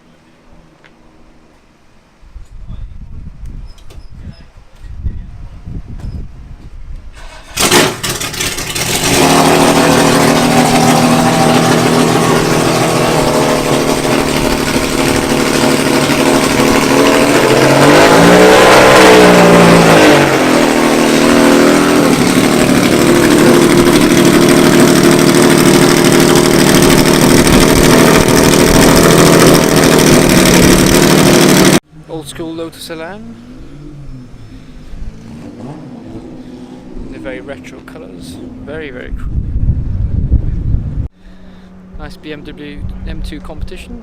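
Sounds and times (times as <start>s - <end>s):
loud car engine revving: 7.2s - 31.8s, 33.2s - 38.8s.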